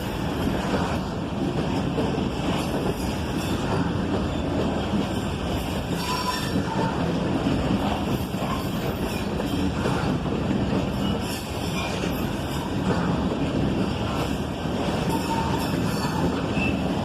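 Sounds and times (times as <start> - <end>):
freight train rumbling: 0.0 - 17.0
wheels squealing on rails: 2.5 - 7.2, 7.9 - 13.2, 13.8 - 17.0.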